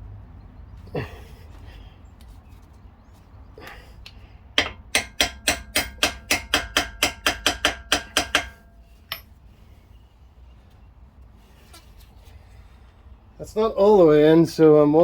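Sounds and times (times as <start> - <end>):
hammer tapping on metal: 4.6 - 9.3.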